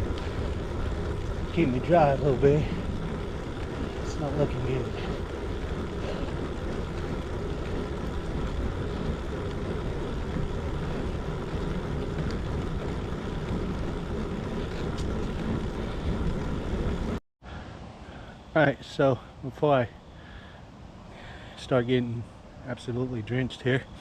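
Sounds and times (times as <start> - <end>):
wind buffeting microphone: 0.0 - 17.2
tyres hissing on wet pavement: 0.0 - 22.0.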